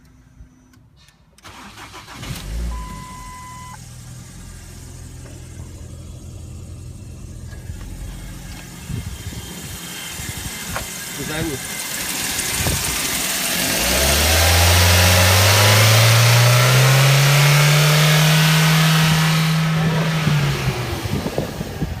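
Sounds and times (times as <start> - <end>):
car engine starter cranking: 0.7 - 16.9
car engine idling: 1.4 - 22.0
short beep: 2.7 - 3.8.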